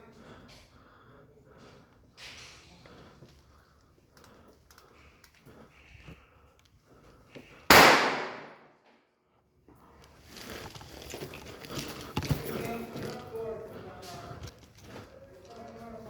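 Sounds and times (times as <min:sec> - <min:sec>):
faint clicks and rustling: 0:01.7 - 0:07.6, 0:09.8 - 0:16.0.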